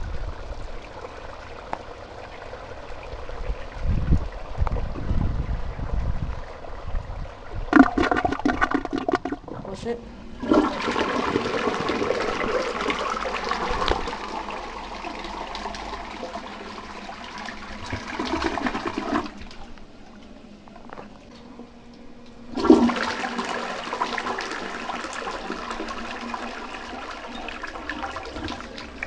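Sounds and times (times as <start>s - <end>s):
toilet flushing water rushing: 7.7s - 19.8s, 22.5s - 29.0s.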